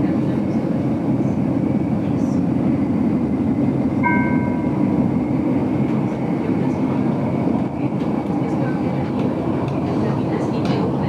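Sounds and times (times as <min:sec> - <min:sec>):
train rumbling on rails: 0:00.0 - 0:11.0
brief high ringing tone: 0:04.0 - 0:04.9.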